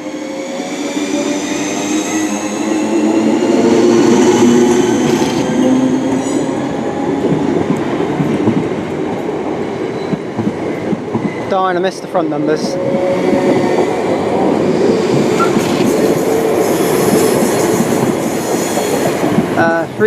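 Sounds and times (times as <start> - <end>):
train rumble: 0.0 - 20.0.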